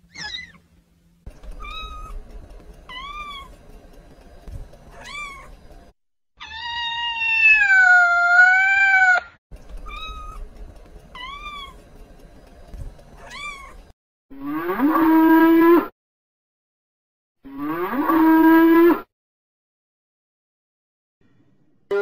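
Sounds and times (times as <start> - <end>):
cow mooing: 14.4 - 15.9, 17.5 - 19.1.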